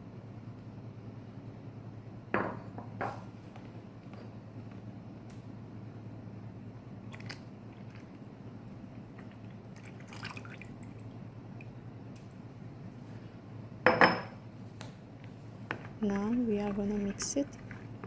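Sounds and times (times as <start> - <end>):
steady low hum: 0.0 - 18.0
small drips: 9.2 - 11.8.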